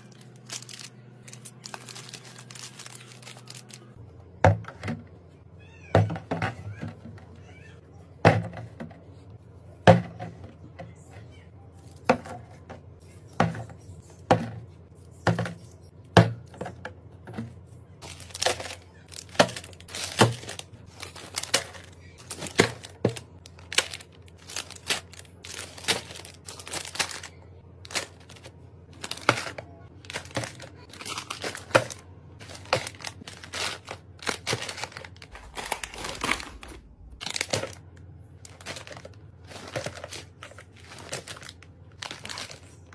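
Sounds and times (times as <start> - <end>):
plastic packaging crinkling: 0.0 - 4.0, 18.0 - 42.9
knocks and taps on packets: 15.2 - 27.3, 27.9 - 37.8.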